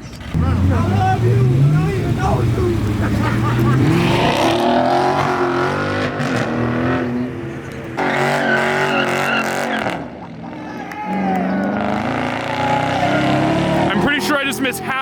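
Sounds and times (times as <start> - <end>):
tyres squealing: 0.3 - 10.0
car engine revving hard: 0.3 - 10.2, 11.4 - 14.3.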